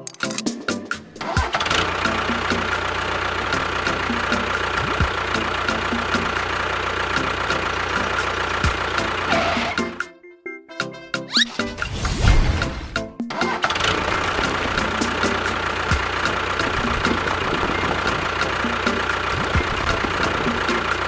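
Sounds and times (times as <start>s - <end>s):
motor humming and whining: 1.2s - 9.8s, 13.7s - 21.0s.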